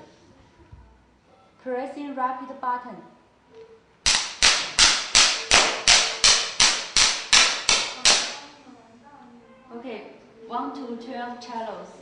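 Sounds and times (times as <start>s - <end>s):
fireworks sharp cracks: 4.1s - 8.4s.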